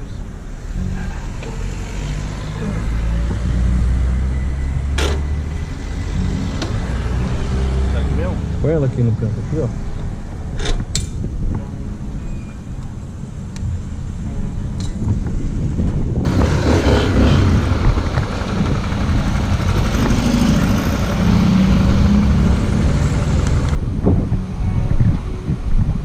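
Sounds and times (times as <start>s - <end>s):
vehicle engine running: 16.2s - 23.8s.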